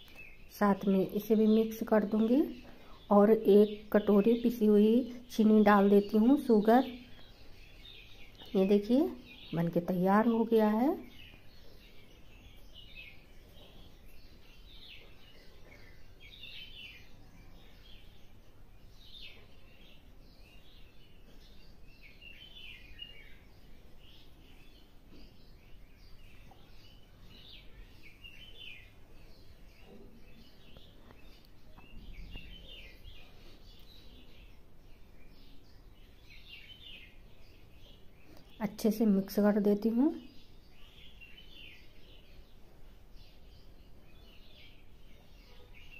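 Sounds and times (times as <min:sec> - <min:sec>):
faint bird chirps: 0:00.0 - 0:45.9.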